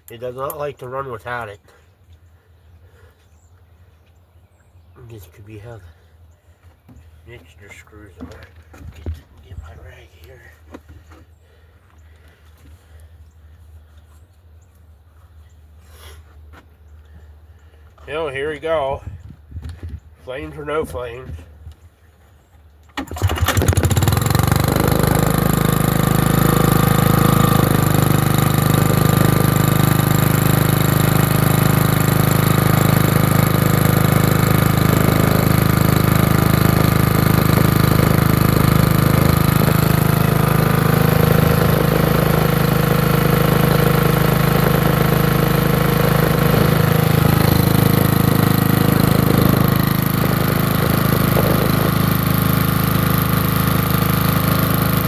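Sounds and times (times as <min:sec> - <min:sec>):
generator engine starting: 0:22.9 - 0:55.0.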